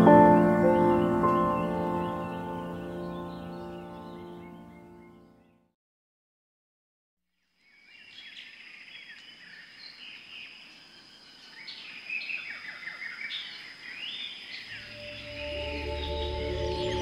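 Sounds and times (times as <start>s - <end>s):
soft background music: 0.0s - 5.3s, 14.8s - 17.0s
birds chirping and singing: 0.0s - 5.6s, 7.7s - 17.0s.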